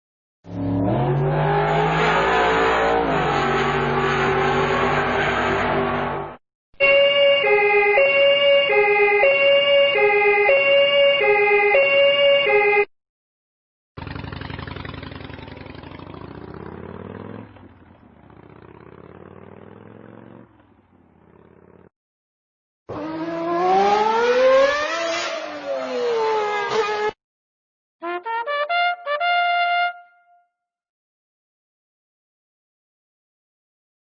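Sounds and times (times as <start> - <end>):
engine-like sound rising in pitch: 0.5 - 12.8, 14.0 - 20.5, 22.9 - 27.2
two-tone emergency siren: 6.8 - 12.9, 22.9 - 27.2.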